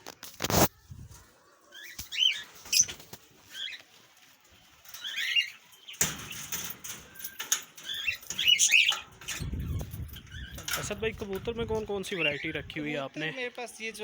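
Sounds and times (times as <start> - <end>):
wings fluttering: 0.5 - 12.3
parrots chirping: 4.9 - 11.0, 12.0 - 12.7.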